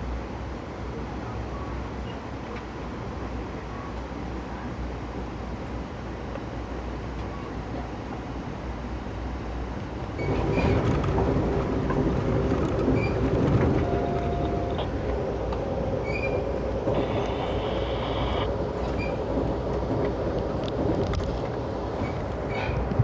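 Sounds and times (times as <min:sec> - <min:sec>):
train wheels rumbling on rails: 0:04.0 - 0:23.0
short high squeaks: 0:16.0 - 0:19.2.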